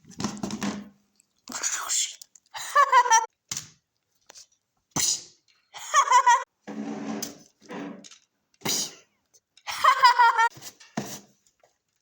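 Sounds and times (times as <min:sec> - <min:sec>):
person making wordless noises: 0:01.4 - 0:03.3.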